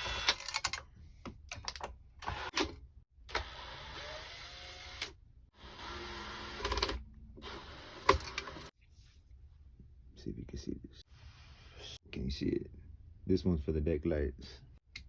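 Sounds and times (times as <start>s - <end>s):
power screwdriver motor: 0.0s - 0.4s, 3.3s - 8.7s.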